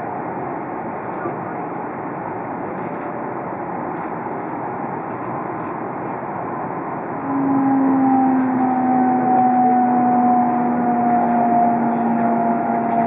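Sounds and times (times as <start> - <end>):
train running noise: 0.0 - 13.0
two-pitch tone: 7.2 - 13.0.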